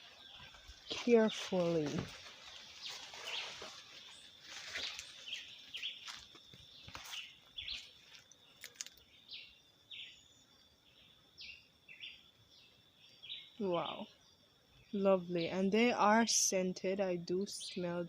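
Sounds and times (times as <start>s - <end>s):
footsteps through brush: 0.0s - 9.0s
bird chirping: 0.0s - 15.7s
high insect ringing: 0.0s - 18.0s.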